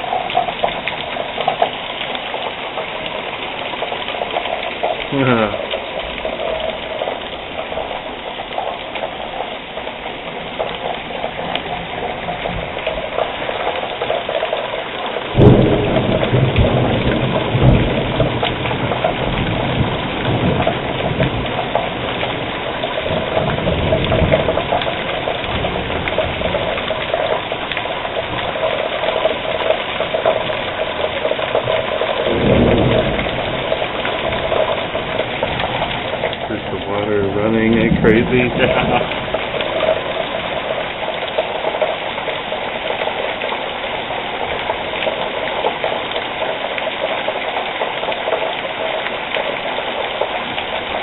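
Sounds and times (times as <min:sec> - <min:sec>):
heavy rain pouring: 0:00.0 - 0:51.0
thunder: 0:15.4 - 0:27.4, 0:28.1 - 0:36.5.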